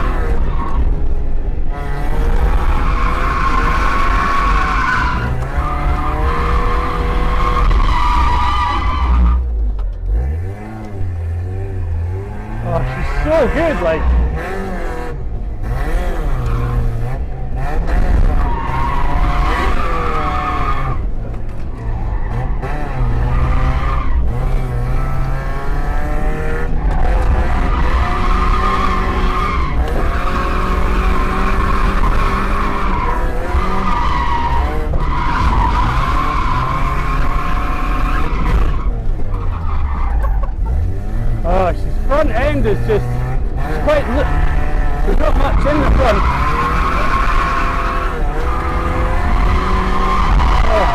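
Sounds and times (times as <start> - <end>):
car engine revving hard: 1.7 - 9.4, 10.0 - 21.2, 21.8 - 50.9
tyres squealing: 42.1 - 50.9.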